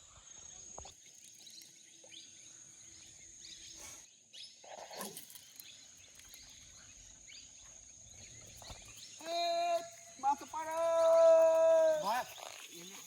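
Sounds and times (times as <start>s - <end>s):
faint chirps: 0.0s - 13.0s
high-pitched insect drone: 5.0s - 13.0s.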